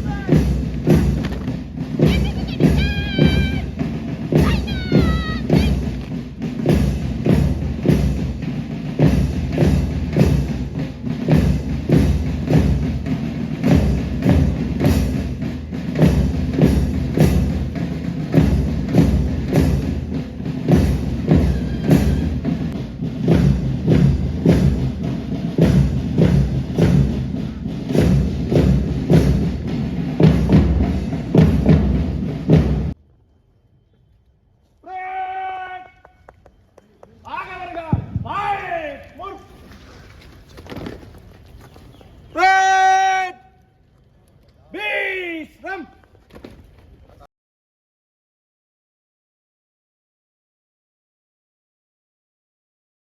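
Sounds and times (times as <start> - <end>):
music with heavy drum beat: 0.0 - 33.0.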